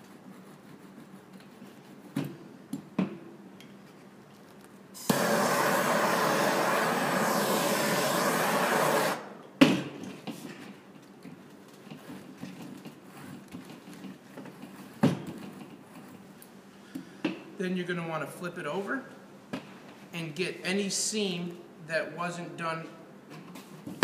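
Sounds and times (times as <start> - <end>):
torch flame hissing: 5.0 - 9.4.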